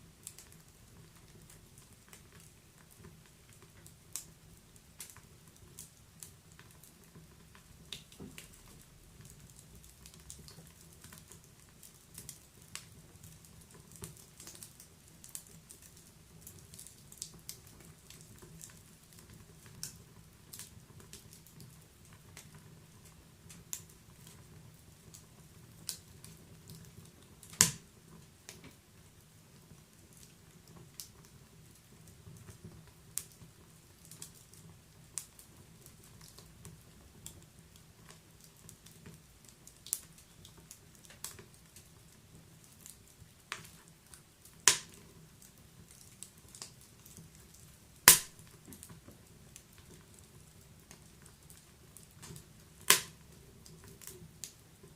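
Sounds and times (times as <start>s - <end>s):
wood fire crackling: 0.0s - 54.9s
loud pop of fire: 27.6s - 27.9s, 44.6s - 45.0s, 48.0s - 48.5s, 52.9s - 53.2s.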